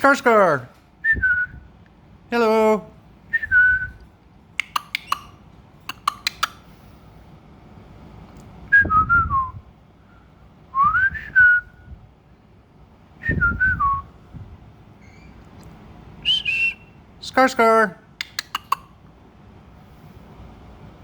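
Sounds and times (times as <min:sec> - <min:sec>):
sharp clicks: 0:04.6 - 0:06.6, 0:18.2 - 0:18.9
short melodic whistles: 0:16.2 - 0:16.9.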